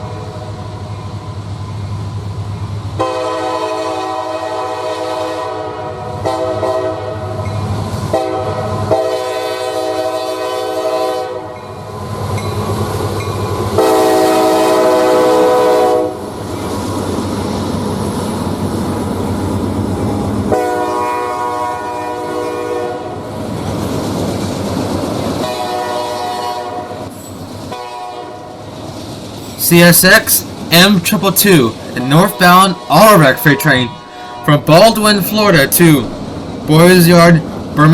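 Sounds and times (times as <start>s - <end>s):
train rumble and wheel clatter: 0.0s - 37.9s
locomotive horn blasts: 3.0s - 7.4s, 8.1s - 11.6s, 13.8s - 16.2s, 20.5s - 23.2s, 25.4s - 27.0s, 27.7s - 28.6s, 31.9s - 36.2s.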